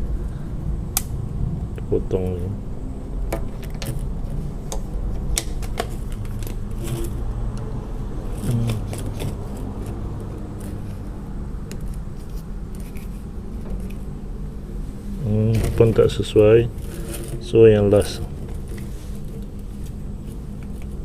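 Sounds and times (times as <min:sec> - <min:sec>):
steady low hum: 0:00.0 - 0:21.0
handling noise: 0:03.2 - 0:07.3, 0:08.3 - 0:14.2, 0:15.3 - 0:21.0.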